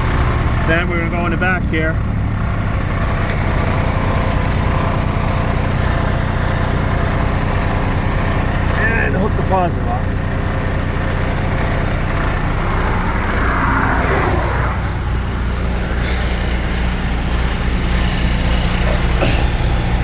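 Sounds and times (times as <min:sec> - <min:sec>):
diesel truck engine idling: 0:00.0 - 0:20.0
vehicle passing: 0:09.9 - 0:19.2.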